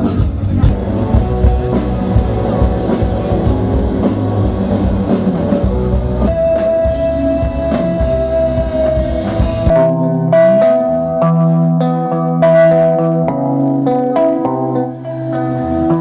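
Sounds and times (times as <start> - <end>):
drum kit: 0.0 - 11.6
bass guitar: 0.0 - 16.0
electric guitar: 0.0 - 16.0.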